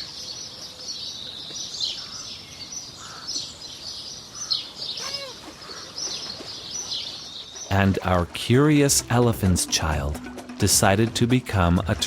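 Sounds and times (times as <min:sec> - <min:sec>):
birds chirping: 0:00.0 - 0:12.0
low arching bird call: 0:04.3 - 0:06.2.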